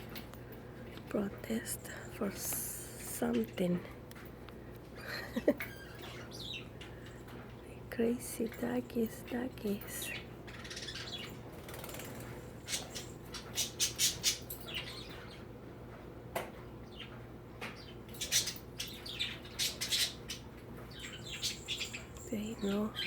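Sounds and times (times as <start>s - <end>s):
birds squawking and chirping: 4.6s - 7.5s, 9.7s - 15.6s, 16.7s - 23.0s.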